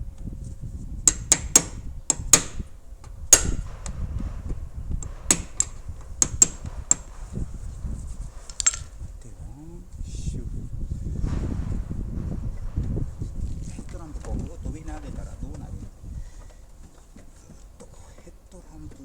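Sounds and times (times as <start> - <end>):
hammer tapping sheet metal: 1.1 - 7.5.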